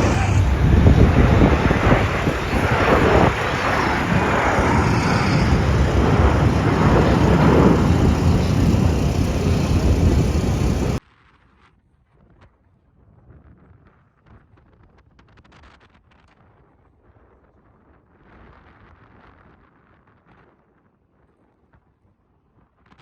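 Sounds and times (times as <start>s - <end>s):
aircraft engines roaring: 0.0s - 11.0s.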